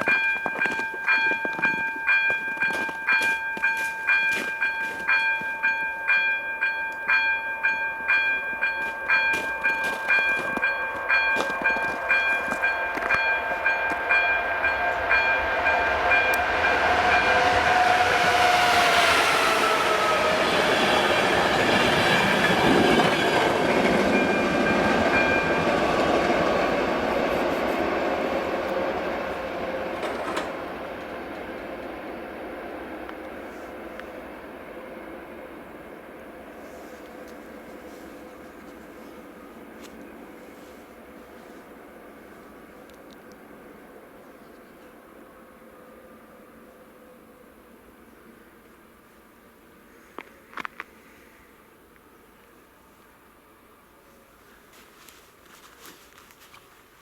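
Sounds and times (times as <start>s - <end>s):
level crossing warning bell: 0.0s - 31.1s
train rumbling past: 0.0s - 48.6s.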